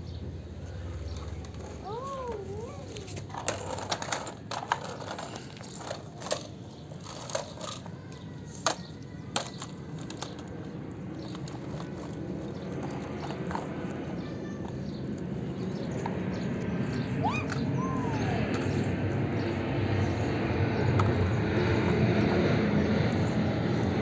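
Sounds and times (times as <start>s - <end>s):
wavering pitched tone: 17.2s - 18.5s.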